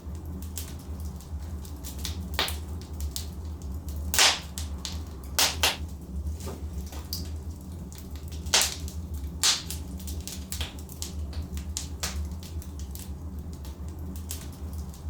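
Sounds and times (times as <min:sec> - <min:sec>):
low rumble of fire: 0:00.0 - 0:15.0
logs crackling and popping: 0:00.1 - 0:15.0
sharp cracks: 0:04.2 - 0:05.8, 0:08.5 - 0:09.8.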